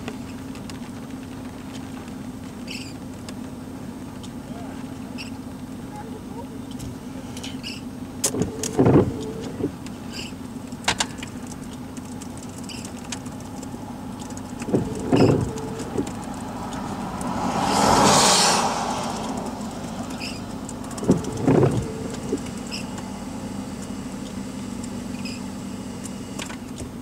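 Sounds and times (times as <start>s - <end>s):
engine idling: 0.0s - 27.0s
sharp clicks and knocks: 8.2s - 17.4s, 19.2s - 23.1s
rush of noise: 14.6s - 23.4s.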